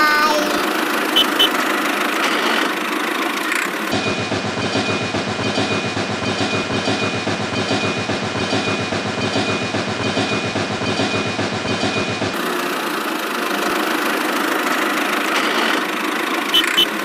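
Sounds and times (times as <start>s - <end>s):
train wheels clickety-clack: 0.6s - 17.0s
thin high tone: 1.2s - 1.6s.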